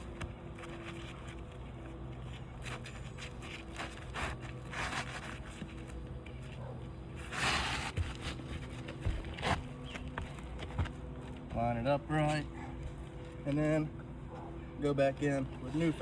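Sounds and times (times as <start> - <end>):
shingle scraping on roof: 7.1 - 11.1.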